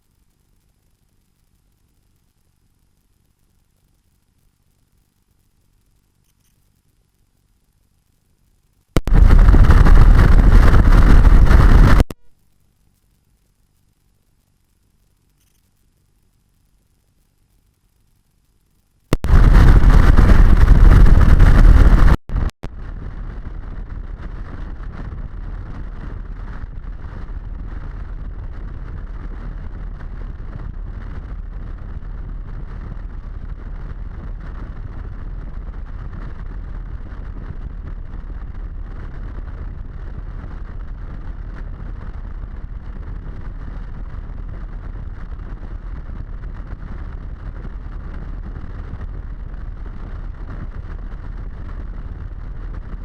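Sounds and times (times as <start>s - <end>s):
muffled wind noise: 8.9s - 12.3s, 19.1s - 53.0s
loud wind blast: 9.0s - 12.2s, 19.1s - 23.2s.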